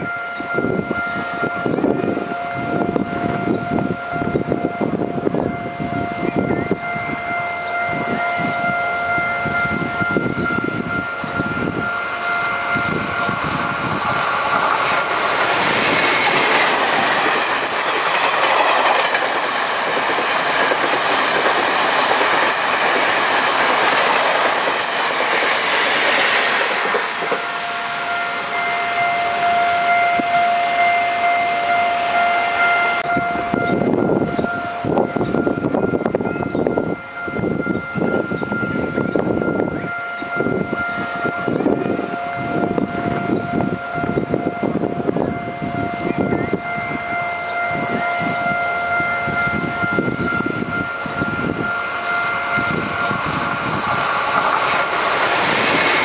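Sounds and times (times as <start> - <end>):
level crossing warning bell: 0.0 - 56.0
train wheels clacking over rail joints: 12.4 - 27.6, 51.0 - 56.0.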